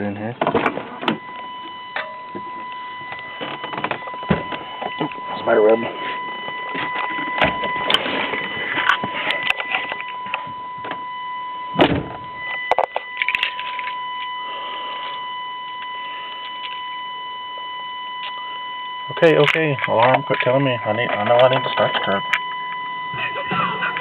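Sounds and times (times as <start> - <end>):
high warning alarm tone: 0.0 - 24.0
clicks and rustling: 6.4 - 11.0, 12.5 - 14.4.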